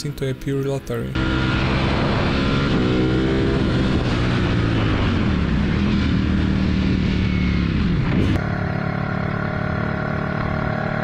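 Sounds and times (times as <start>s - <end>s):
motorcycle engine: 1.1s - 11.0s
wind noise: 1.4s - 8.4s.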